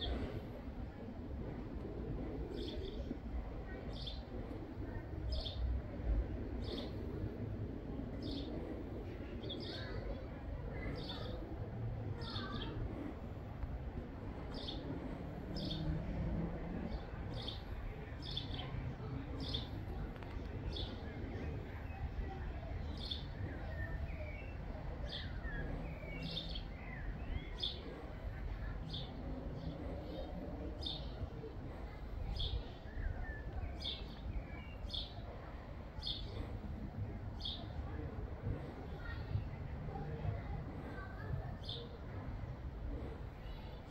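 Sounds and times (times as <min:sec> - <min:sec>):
low background rumble: 0:00.0 - 0:43.9.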